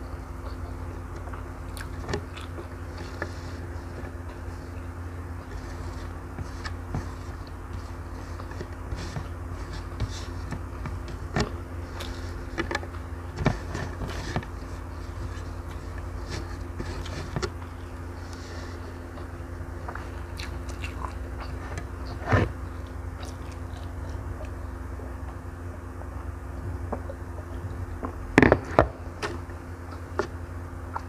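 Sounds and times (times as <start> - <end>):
steady low hum: 0.0 - 31.0
chewing with wet mouth clicks: 0.4 - 3.3, 19.9 - 22.2, 22.8 - 24.6
fingers scraping rice on plate: 1.9 - 24.0.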